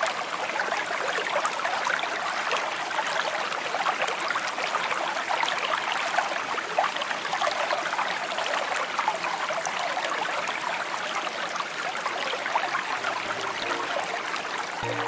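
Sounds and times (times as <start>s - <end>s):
stream trickling and babbling: 0.0s - 15.0s
faint held music notes: 13.0s - 15.0s.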